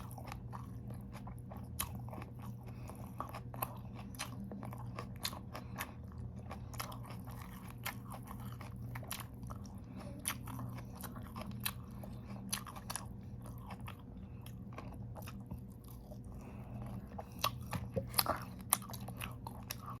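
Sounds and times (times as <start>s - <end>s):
crunching raw vegetables: 0.0s - 20.0s.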